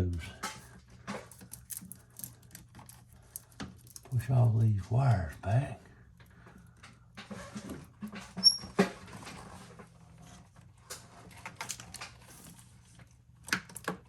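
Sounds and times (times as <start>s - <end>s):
brief high squeak: 8.4s - 8.8s.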